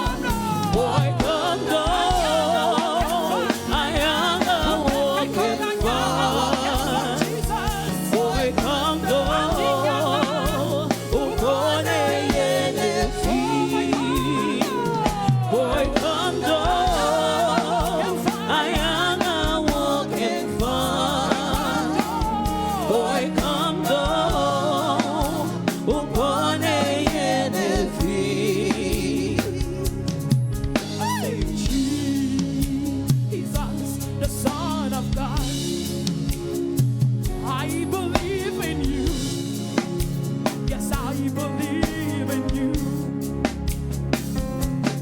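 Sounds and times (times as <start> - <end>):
person singing with vibrato: 0.0 - 36.5, 37.4 - 43.4
band with drums playing: 0.0 - 45.0.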